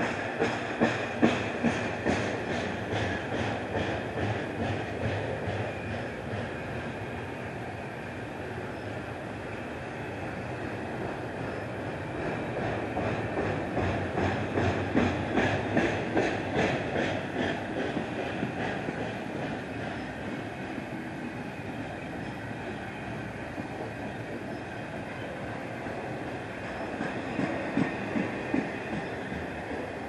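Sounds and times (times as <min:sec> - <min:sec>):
freight train rolling rumble: 0:00.0 - 0:30.0
train wheels clicking over rail joints: 0:00.0 - 0:30.0.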